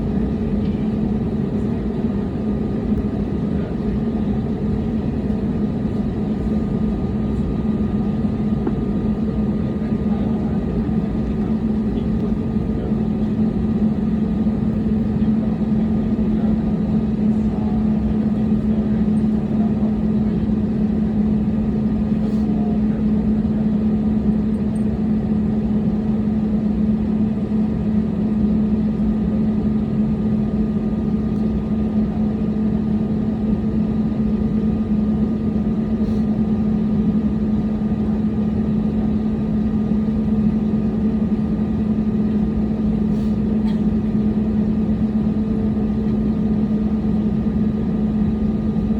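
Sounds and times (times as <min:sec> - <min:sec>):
jet airliner cabin drone: 0:00.0 - 0:48.9.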